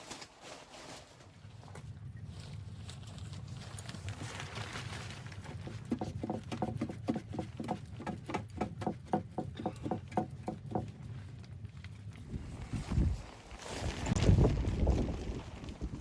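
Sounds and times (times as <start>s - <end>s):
low wind rumble: 8.7s - 16.0s
footsteps crunching in snow: 12.2s - 16.0s.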